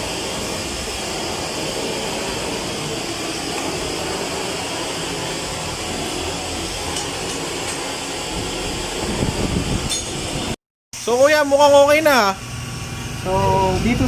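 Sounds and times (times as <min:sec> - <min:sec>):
machine rushing noise: 0:00.0 - 0:10.6.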